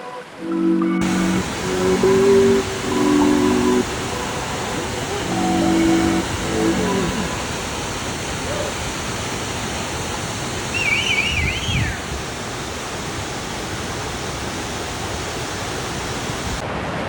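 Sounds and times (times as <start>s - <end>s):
high wavering whistle: 0.5s - 8.8s, 10.7s - 12.0s
waterfall rushing: 1.0s - 16.6s.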